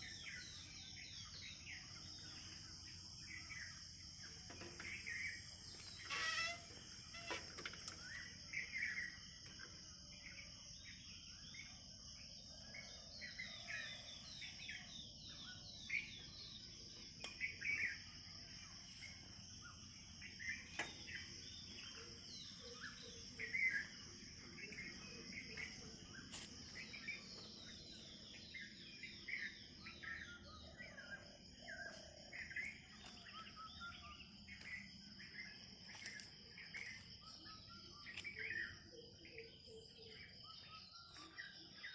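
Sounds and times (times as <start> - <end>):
birds chirping and calling: 0.0 - 10.8, 12.9 - 41.9
high-pitched insect drone: 1.5 - 10.4.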